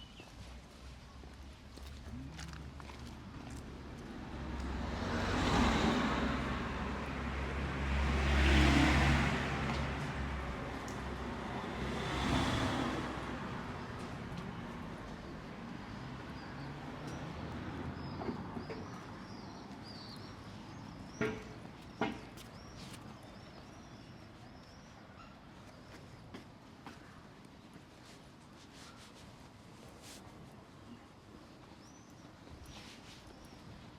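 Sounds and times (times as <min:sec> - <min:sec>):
car passing: 0:02.2 - 0:15.0
small birds chirping: 0:13.9 - 0:27.9, 0:30.8 - 0:33.9
sharp knocks: 0:21.2 - 0:22.4.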